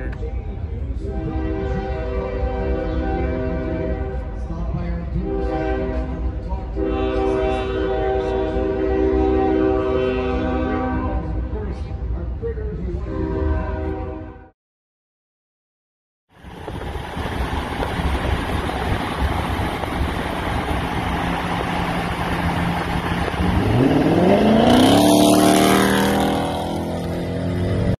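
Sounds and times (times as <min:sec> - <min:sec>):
car engine revving: 0:17.0 - 0:28.0.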